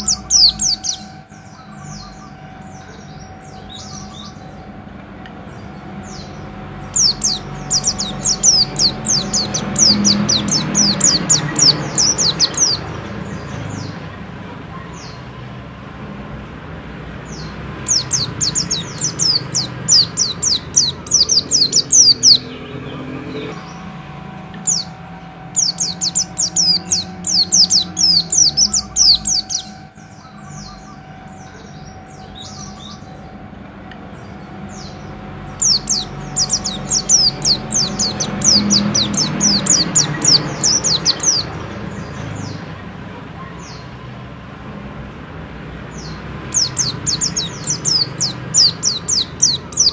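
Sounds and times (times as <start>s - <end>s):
small bird singing rapid high notes: 0.0s - 4.7s, 5.5s - 14.0s, 17.3s - 22.7s, 23.3s - 33.3s, 34.2s - 42.7s, 45.9s - 49.9s
low steady hum: 0.0s - 42.9s.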